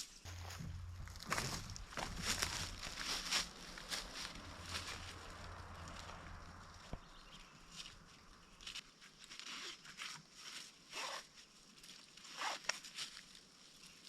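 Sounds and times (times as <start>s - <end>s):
rustling and scraping swishes: 0.0s - 11.2s.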